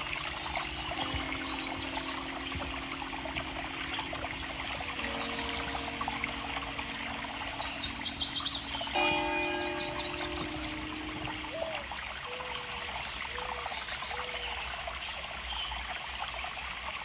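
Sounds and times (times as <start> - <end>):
background music sustained notes: 0.0 - 13.1
water trickling: 0.0 - 17.0.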